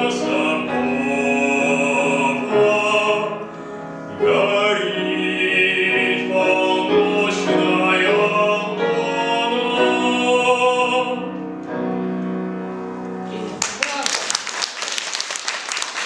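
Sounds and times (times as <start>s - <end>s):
man singing operatically: 0.0s - 11.4s
piano accompaniment: 0.0s - 16.0s.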